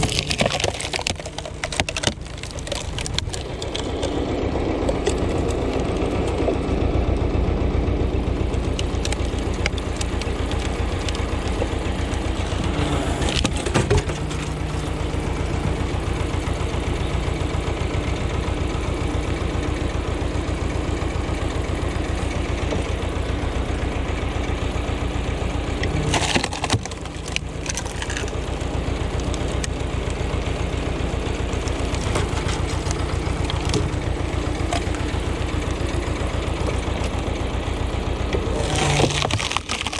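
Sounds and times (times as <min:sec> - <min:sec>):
tractor diesel engine running: 0:00.0 - 0:39.9
sharp crack: 0:38.6 - 0:39.9.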